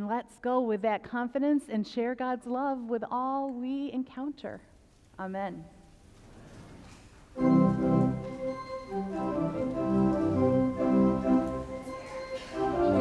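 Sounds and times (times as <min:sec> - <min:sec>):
church organ playing chords: 0:07.4 - 0:13.0.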